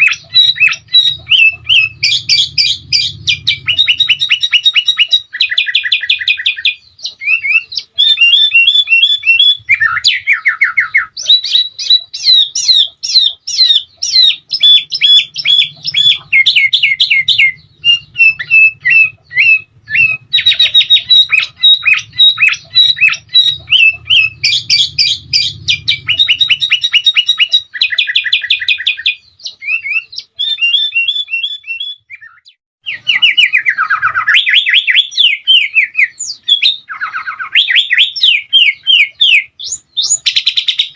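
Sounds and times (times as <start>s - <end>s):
bulbul chirping trills: 0.0s - 40.9s.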